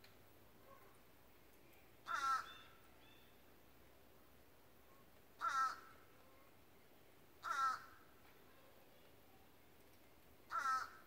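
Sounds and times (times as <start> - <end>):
short bird calls: 2.0 - 3.4.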